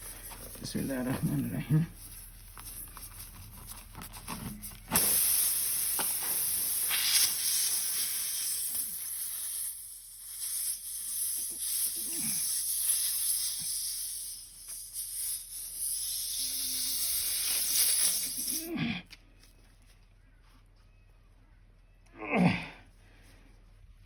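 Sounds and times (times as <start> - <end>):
air hissing from tyre: 4.5 - 18.7.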